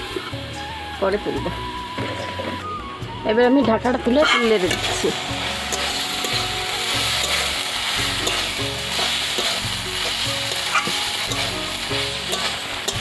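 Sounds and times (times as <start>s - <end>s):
stems sizzling in hot oil: 0.0s - 13.0s
metal spatula scraping a pan: 4.1s - 13.0s.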